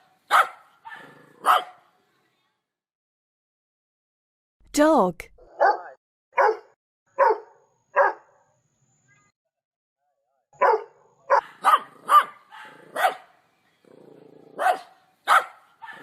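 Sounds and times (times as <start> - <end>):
dog barking: 0.0 - 1.9, 5.5 - 8.4, 10.6 - 13.4, 14.5 - 16.0.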